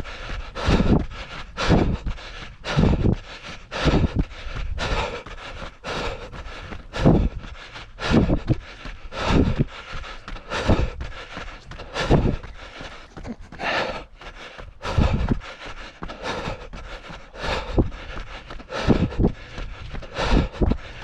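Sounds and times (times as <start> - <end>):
heavy breathing: 0.0 - 21.0.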